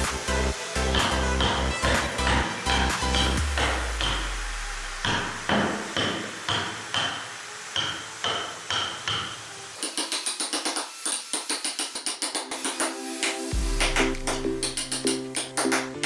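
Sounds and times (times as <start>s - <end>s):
mallet striking chisel into wood: 5.5s - 7.2s.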